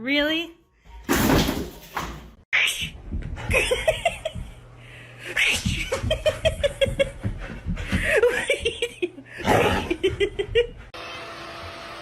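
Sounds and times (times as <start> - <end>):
person giggling: 3.4 - 4.6, 5.6 - 10.9.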